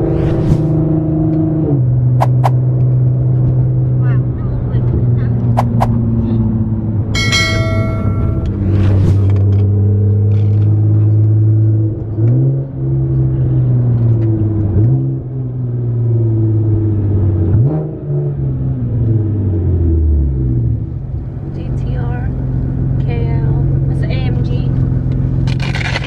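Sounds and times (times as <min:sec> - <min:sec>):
vehicle engine humming: 0:01.8 - 0:17.3, 0:20.2 - 0:25.6
short high-pitched tone: 0:07.2 - 0:08.6.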